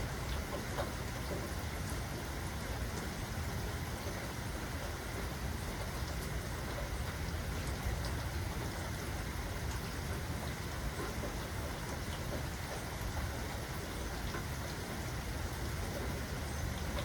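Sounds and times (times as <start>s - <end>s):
raindrops pattering: 0.0s - 17.0s
steady rain hiss: 0.0s - 17.0s.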